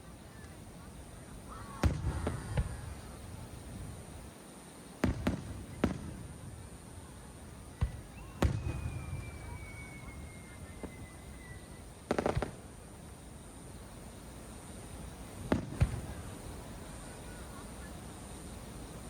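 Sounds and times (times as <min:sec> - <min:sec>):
firework bangs: 0:01.6 - 0:03.9, 0:05.0 - 0:06.9, 0:07.6 - 0:12.8, 0:15.4 - 0:16.5
firework whistle: 0:07.7 - 0:12.6.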